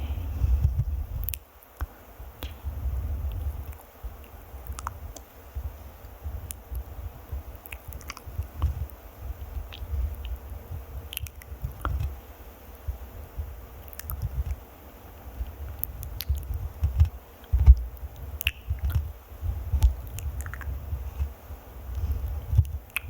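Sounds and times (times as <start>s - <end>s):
scratching and rubbing on microphone: 2.6s - 12.2s, 15.2s - 23.0s.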